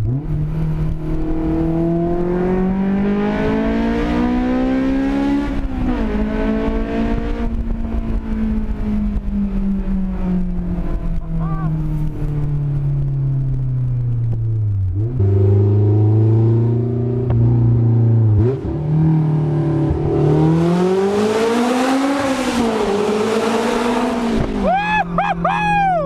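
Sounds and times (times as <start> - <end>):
car engine revving through gear changes: 0.0 - 9.6, 14.9 - 24.6.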